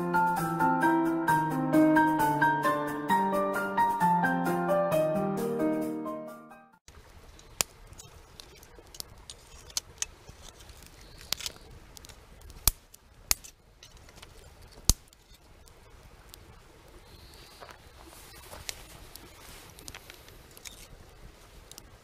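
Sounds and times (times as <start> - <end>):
piano music: 0.0 - 6.8.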